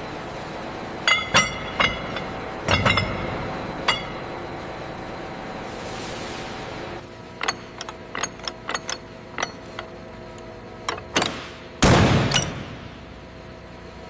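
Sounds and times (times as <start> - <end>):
hand tools clicking on metal: 7.4 - 11.4.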